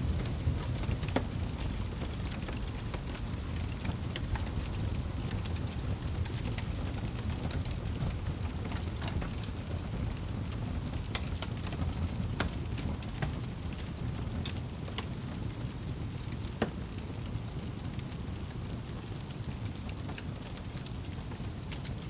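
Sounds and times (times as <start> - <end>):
fire low rumble: 0.0 - 22.0
firewood crackling and popping: 0.0 - 22.0.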